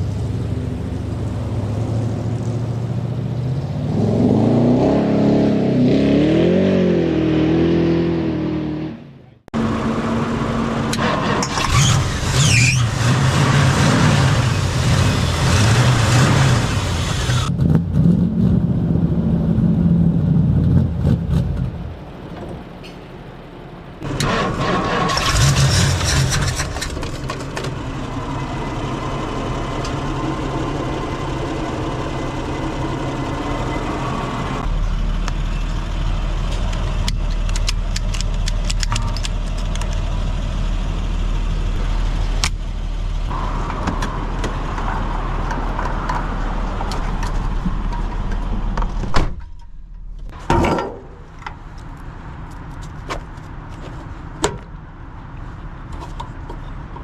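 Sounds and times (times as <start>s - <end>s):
car engine running and revving: 0.0s - 8.9s, 9.6s - 49.0s.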